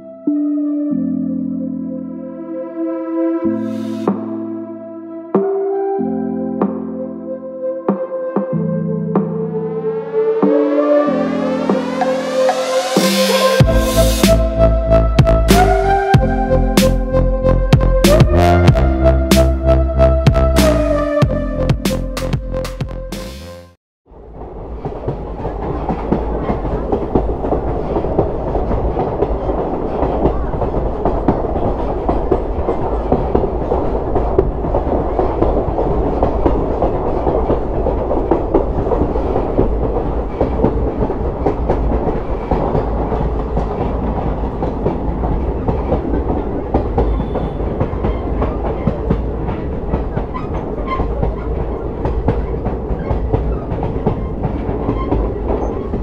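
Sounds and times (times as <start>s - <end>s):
train wheels clattering on rails: 24.2s - 56.0s.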